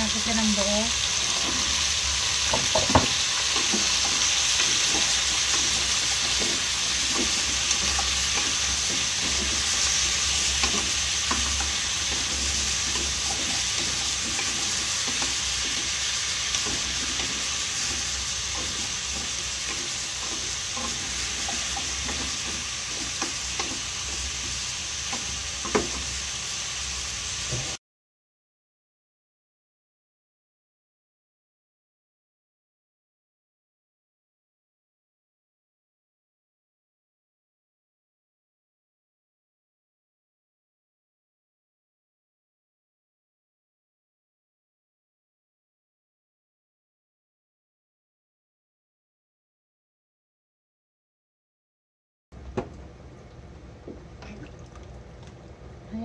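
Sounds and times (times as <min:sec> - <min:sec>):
food sizzling in a frying pan: 0:00.0 - 0:27.8.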